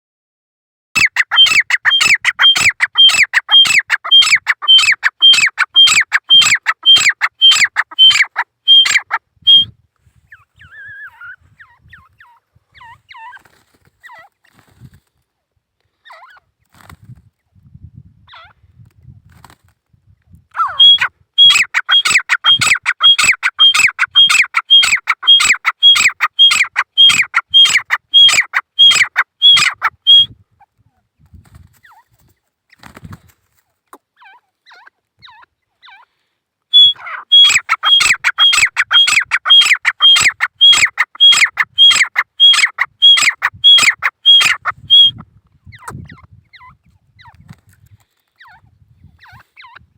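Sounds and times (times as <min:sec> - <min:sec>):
francolin calling shrill notes: 0:01.0 - 0:09.7, 0:20.6 - 0:30.3, 0:36.7 - 0:45.2.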